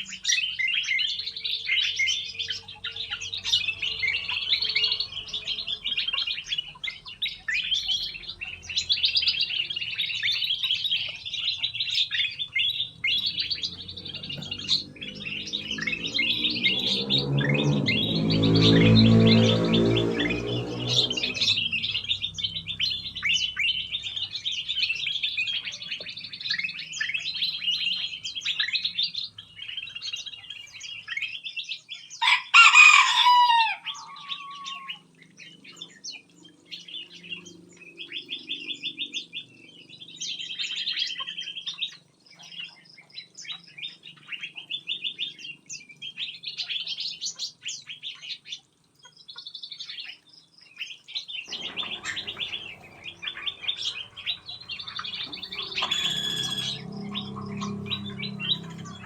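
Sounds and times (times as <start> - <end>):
small birds chirping and trilling: 0.0 - 59.0
rooster crowing: 32.2 - 35.0, 51.5 - 59.0.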